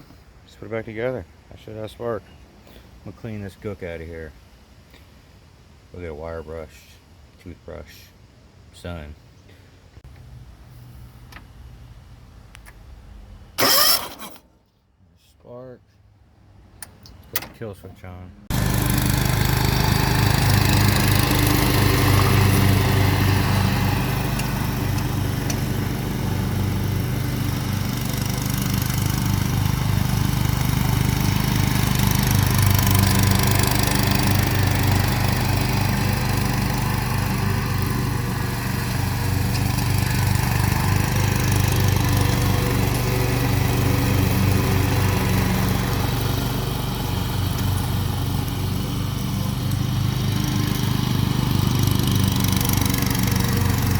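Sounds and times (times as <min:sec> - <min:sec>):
mower engine running at fast idle: 0:18.5 - 0:53.9.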